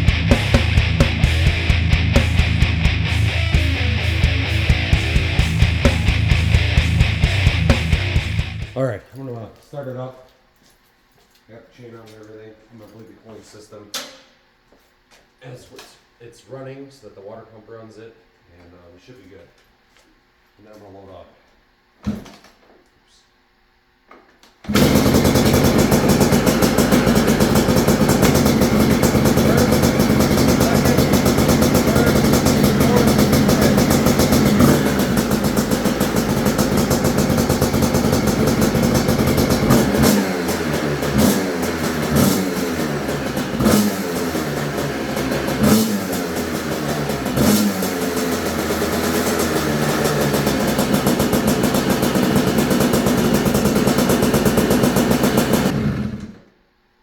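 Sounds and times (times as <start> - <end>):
two-stroke engine revving: 0.0 - 8.8, 24.7 - 56.5.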